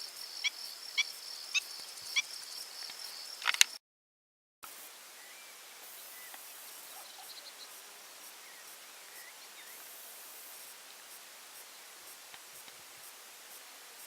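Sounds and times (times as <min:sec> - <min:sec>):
faint chirping calls: 0:00.0 - 0:03.7, 0:05.2 - 0:07.8
steady hiss: 0:04.6 - 0:14.0.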